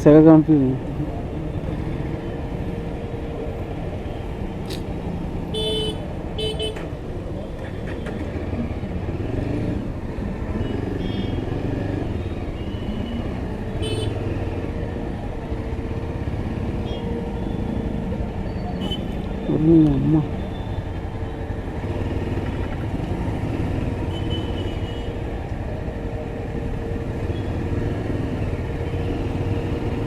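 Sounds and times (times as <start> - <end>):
motorcycle engine and road rumble: 0.0 - 30.0
vehicle horn toots: 5.5 - 6.9, 13.8 - 14.2.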